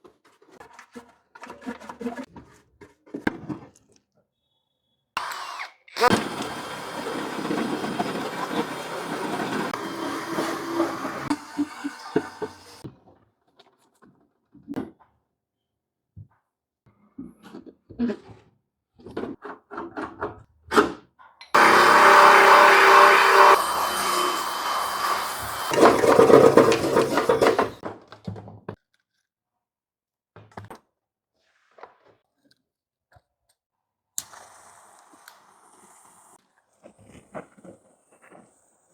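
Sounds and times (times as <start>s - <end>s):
knocks and scrapes: 0.0s - 3.7s, 6.1s - 12.8s, 21.6s - 27.8s
power tool grinding metal: 5.2s - 12.8s, 21.6s - 27.8s.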